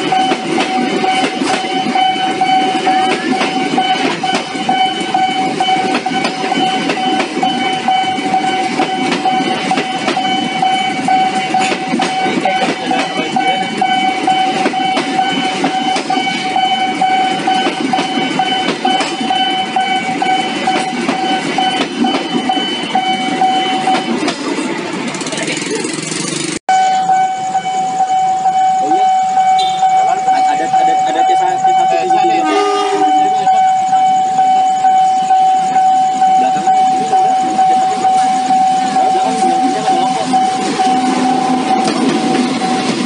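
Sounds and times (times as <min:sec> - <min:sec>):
level crossing alarm tone: 0:00.0 - 0:24.3, 0:26.7 - 0:43.0
train wheels clattering over rails: 0:00.0 - 0:26.6, 0:35.3 - 0:43.0.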